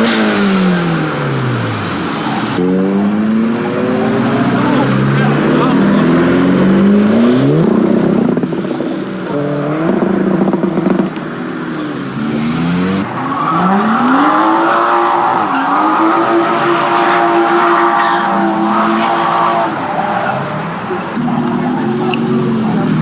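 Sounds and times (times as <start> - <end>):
car engines revving and accelerating: 0.0 - 23.0.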